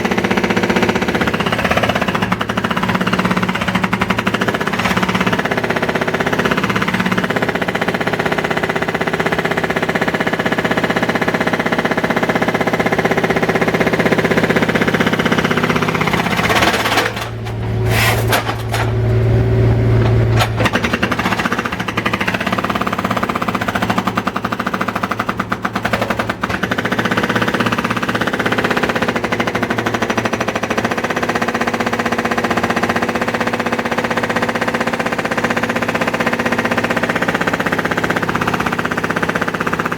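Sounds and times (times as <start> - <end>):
construction breaker hammering: 0.0 - 39.9.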